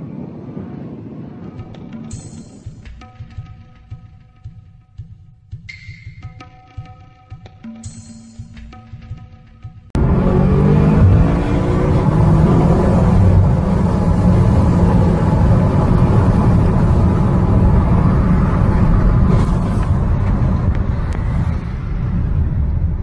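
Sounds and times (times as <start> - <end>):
car engine and tyre noise: 9.9 - 23.0.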